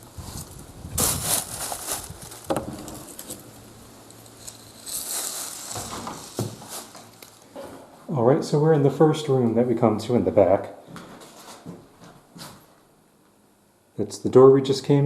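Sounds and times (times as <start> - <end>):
debris crunching: 0.0 - 7.6
scraping shuffle: 0.2 - 3.4, 4.4 - 7.2, 10.9 - 12.7
footsteps on wooden boards: 5.8 - 7.9.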